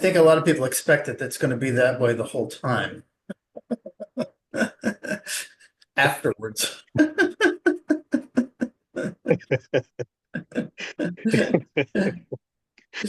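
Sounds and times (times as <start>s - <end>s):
person's voice in choppy bursts: 3.6s - 12.4s.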